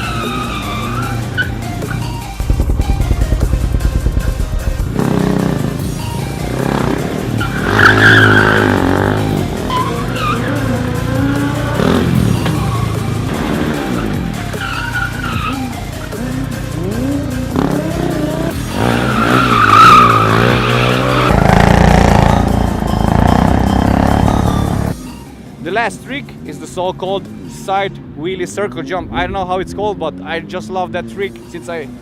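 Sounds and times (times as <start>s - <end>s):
tyre skidding and squealing: 0.0s - 16.0s, 17.7s - 25.0s
motorcycle revving: 0.0s - 25.0s.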